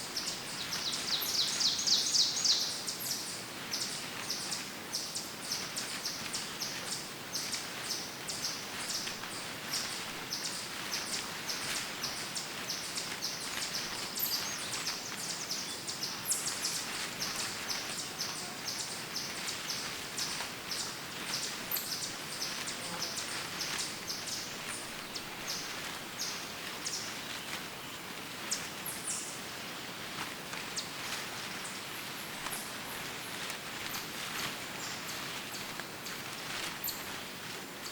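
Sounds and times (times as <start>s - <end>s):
footsteps crunching dry leaves: 0.0s - 37.9s
birds chirping: 0.1s - 29.4s.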